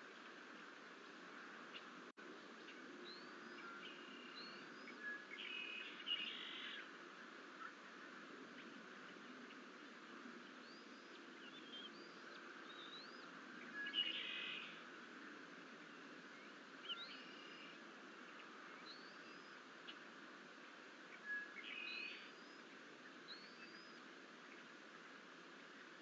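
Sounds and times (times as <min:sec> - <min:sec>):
steady background hiss: 0:00.0 - 0:26.0
faint bird whistles: 0:10.6 - 0:14.8, 0:21.1 - 0:22.6.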